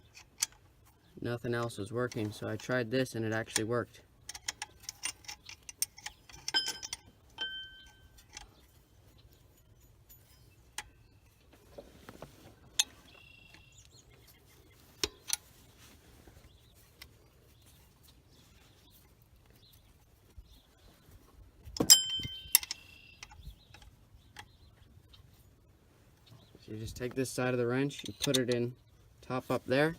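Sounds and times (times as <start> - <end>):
metal wrenches clinking: 0.0 - 11.8, 21.7 - 24.0, 27.3 - 28.7.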